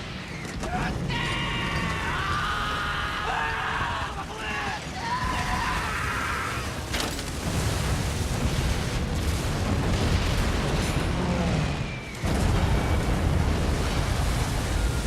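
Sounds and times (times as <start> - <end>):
heavy explosion rumble: 0.0 - 15.0
explosion blast: 5.2 - 15.0.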